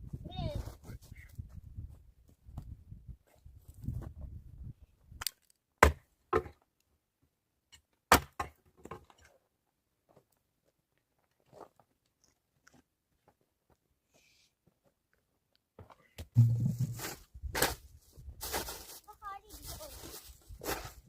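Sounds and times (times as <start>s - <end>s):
firewood being chopped: 5.8s - 6.6s, 8.1s - 9.0s.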